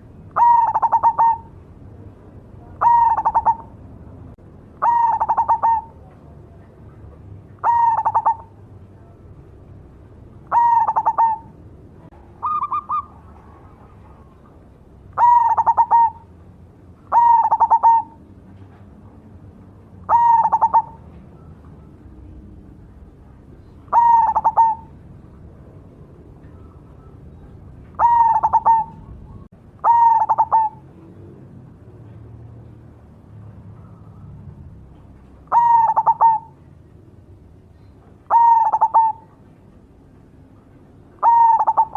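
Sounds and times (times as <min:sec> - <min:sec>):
dove cooing: 0:00.0 - 0:01.6, 0:02.6 - 0:03.8, 0:04.8 - 0:06.1, 0:07.6 - 0:08.6, 0:10.4 - 0:11.6, 0:12.4 - 0:14.5, 0:15.1 - 0:16.3, 0:17.1 - 0:18.2, 0:20.1 - 0:22.4, 0:23.6 - 0:25.0, 0:26.4 - 0:31.3, 0:35.4 - 0:36.7, 0:38.2 - 0:39.4, 0:41.2 - 0:41.9.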